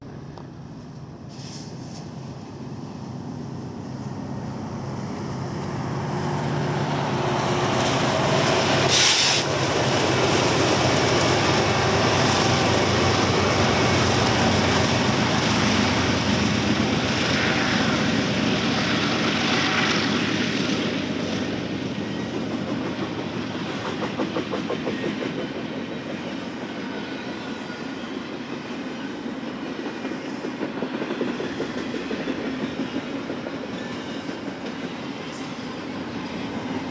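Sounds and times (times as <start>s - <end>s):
diesel locomotive engines passing: 0.0s - 36.9s
train wheels clickety-clack: 5.2s - 36.9s.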